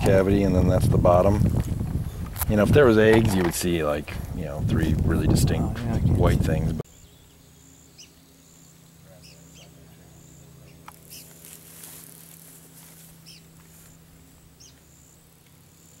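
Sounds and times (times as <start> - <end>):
steady low hum: 0.0 - 16.0
bird chirping: 6.8 - 11.4, 13.2 - 13.6, 14.4 - 15.2.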